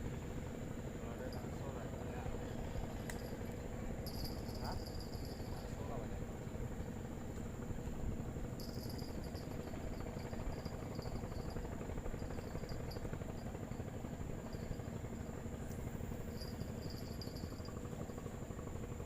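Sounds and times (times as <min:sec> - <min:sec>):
insects chirping trills: 0:00.8 - 0:19.0
high-pitched insect drone: 0:01.2 - 0:06.1, 0:08.5 - 0:18.3.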